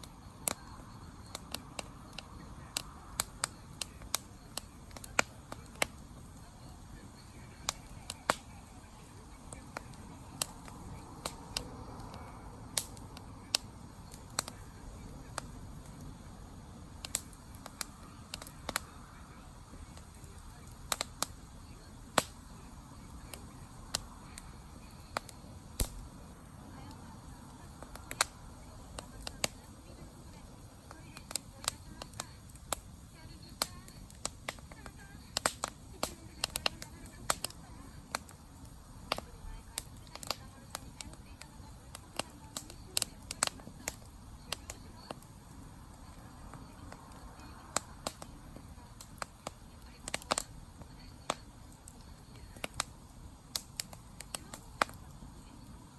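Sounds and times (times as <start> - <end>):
campfire pops and snaps: 0.0 - 55.9
low rumble of burning fire: 0.0 - 55.9.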